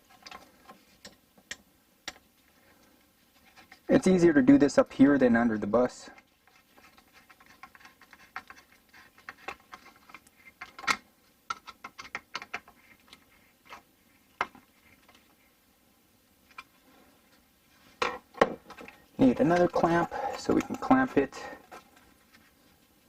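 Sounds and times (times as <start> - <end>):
hands clicking and scratching clamp: 6.2 - 15.3, 18.0 - 22.5.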